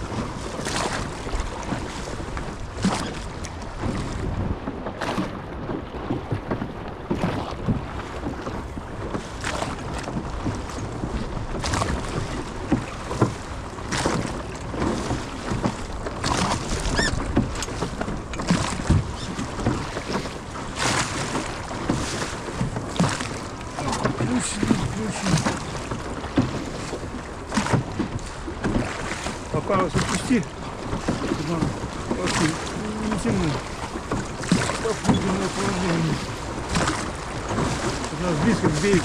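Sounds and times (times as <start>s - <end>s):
oars splashing: 0.0s - 39.0s
wind on microphone: 0.0s - 39.0s
water washing: 11.6s - 39.0s.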